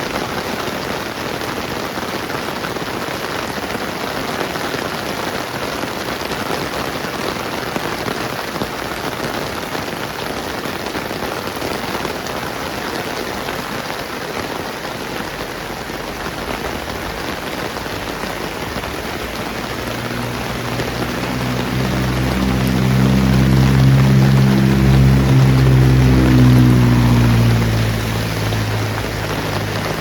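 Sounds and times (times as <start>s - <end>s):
steady rain falling: 0.0s - 30.0s
low engine hum: 15.0s - 30.0s.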